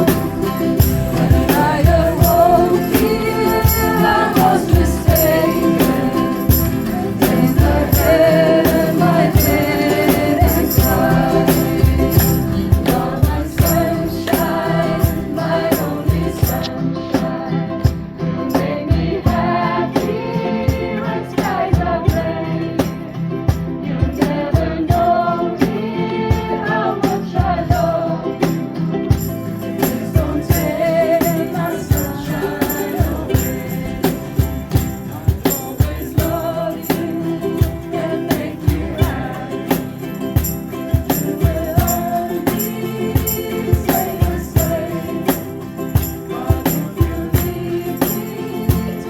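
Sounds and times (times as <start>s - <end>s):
jingling shaker: 0.0s - 16.8s, 28.5s - 49.0s
group of voices singing: 0.0s - 49.0s
ukuleles strummed: 0.0s - 49.0s.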